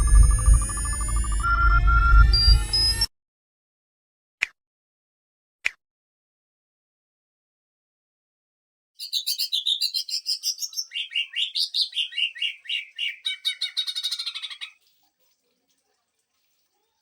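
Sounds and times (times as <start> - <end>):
bird singing rapid trill: 9.0 - 14.8.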